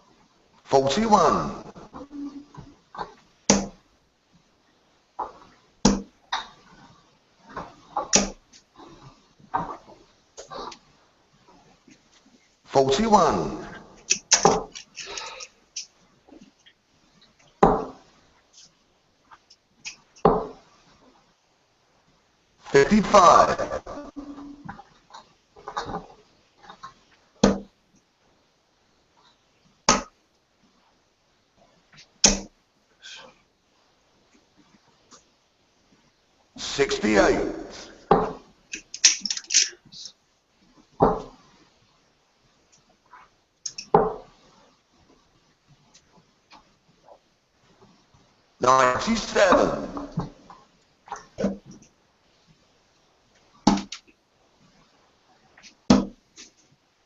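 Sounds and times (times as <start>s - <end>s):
darts striking dartboard: 3.5s - 3.8s, 5.9s - 6.1s, 8.2s - 8.4s, 32.2s - 32.5s
darts thudding into dartboard: 5.9s - 6.1s, 32.2s - 32.5s, 53.7s - 54.0s, 55.9s - 56.2s.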